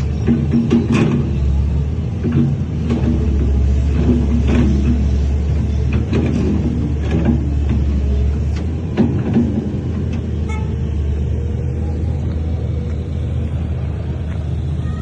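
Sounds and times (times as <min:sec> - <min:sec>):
metallic clanks and knocks: 0:00.0 - 0:01.5, 0:02.1 - 0:10.3
heavy diesel machine engine: 0:00.0 - 0:15.0.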